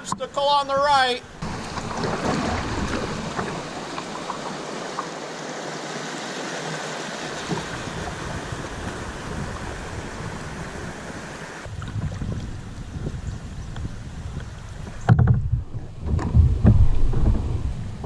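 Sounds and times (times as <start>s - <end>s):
river water rushing: 1.3s - 11.7s
small splashes: 1.4s - 12.4s.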